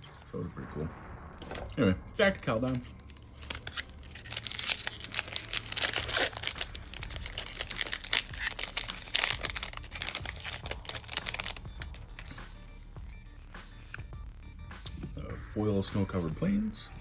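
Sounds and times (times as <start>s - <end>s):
foil wrapper tearing and crinkling: 2.9s - 12.4s.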